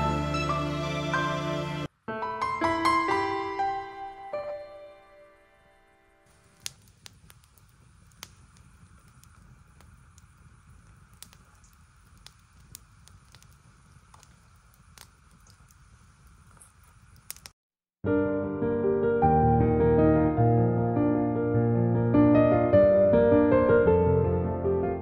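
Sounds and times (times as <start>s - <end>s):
rush of flame: 6.3s - 17.5s
wood fire crackling and popping: 6.3s - 17.6s.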